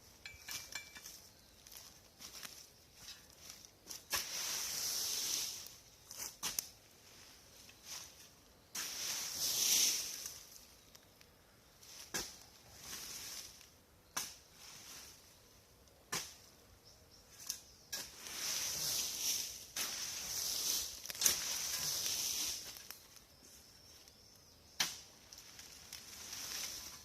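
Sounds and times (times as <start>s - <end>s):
brush rustling and scraping: 0.0s - 11.2s, 11.8s - 16.6s, 17.3s - 27.0s
branches snapping: 21.0s - 22.1s.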